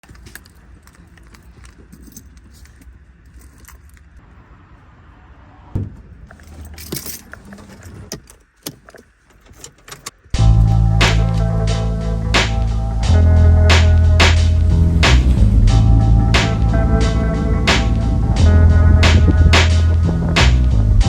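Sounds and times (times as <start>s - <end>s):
small metal things jingling: 0.0s - 4.2s, 6.3s - 10.2s
sharp thump: 5.7s - 6.2s
loud music: 10.4s - 21.0s.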